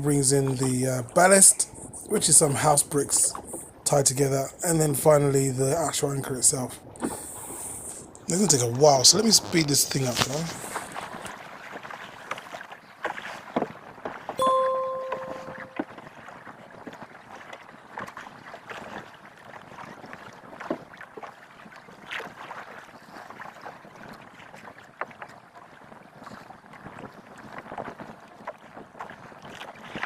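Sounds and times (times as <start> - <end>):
water splashing against canoe: 0.0 - 30.0
knocks and clatters on boat: 11.0 - 30.0.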